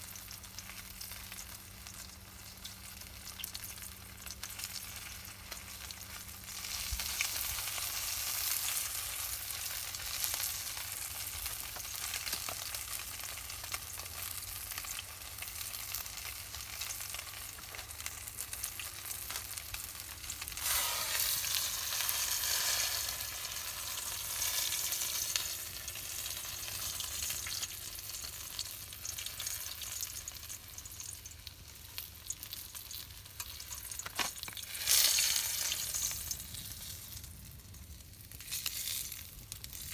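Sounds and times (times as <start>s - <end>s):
meat sizzling over campfire: 0.0s - 39.9s.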